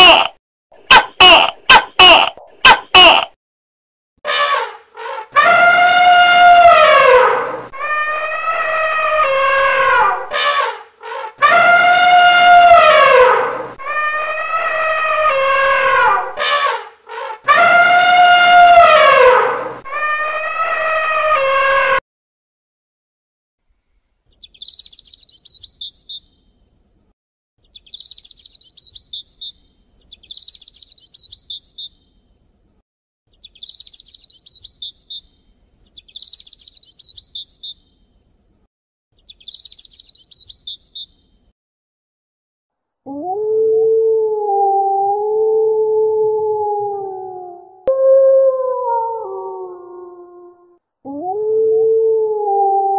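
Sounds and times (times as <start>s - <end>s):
wolf howling: 5.4s - 10.4s, 11.1s - 16.4s, 43.1s - 52.9s
bird twittering: 24.4s - 26.4s, 27.7s - 32.0s, 33.4s - 35.4s, 36.0s - 37.9s, 39.2s - 41.2s.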